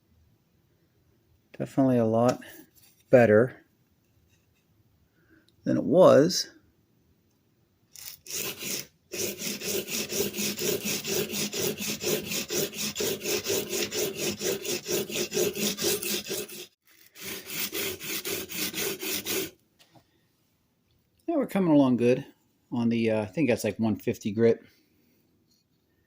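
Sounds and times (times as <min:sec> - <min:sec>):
plane iron scraping on sandpaper: 0:08.0 - 0:19.5.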